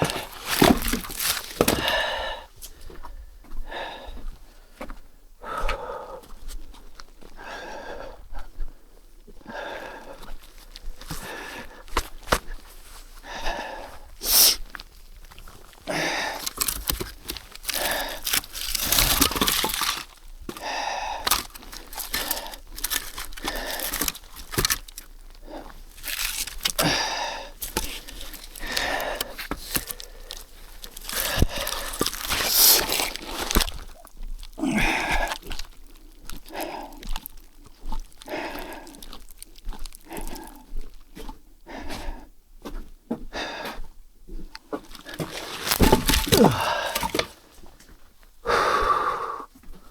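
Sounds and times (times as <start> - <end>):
crunching in deep snow: 0.0 - 2.2, 9.9 - 41.2.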